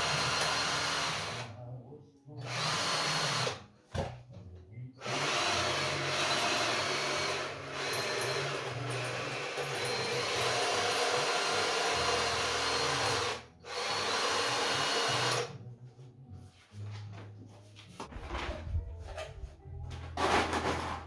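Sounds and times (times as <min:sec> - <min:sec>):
power tool whirring: 0:00.0 - 0:01.5, 0:02.4 - 0:03.6, 0:05.0 - 0:15.5.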